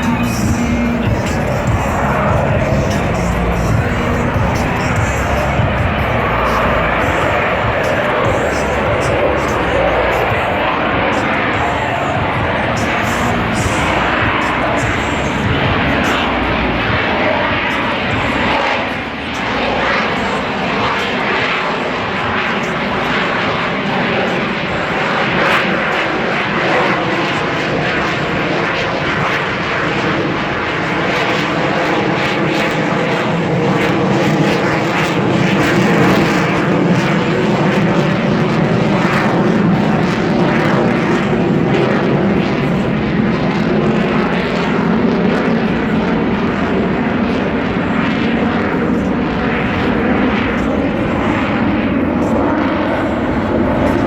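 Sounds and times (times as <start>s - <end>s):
aircraft engine roaring: 0.0s - 54.0s.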